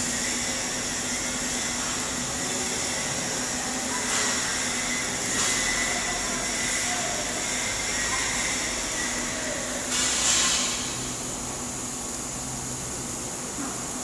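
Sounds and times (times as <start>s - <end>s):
welding arc crackling hiss: 0.0s - 14.0s.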